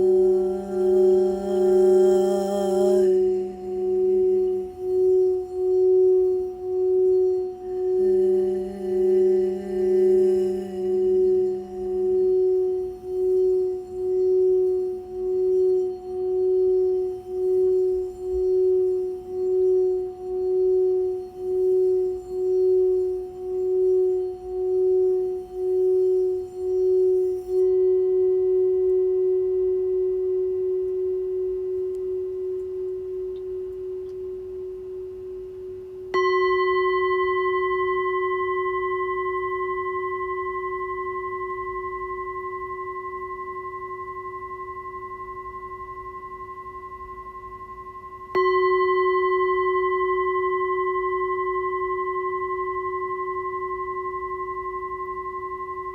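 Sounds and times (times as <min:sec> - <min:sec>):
singing bowl ringing: 0:00.0 - 0:55.9
singing bowl strike: 0:27.6 - 0:55.9.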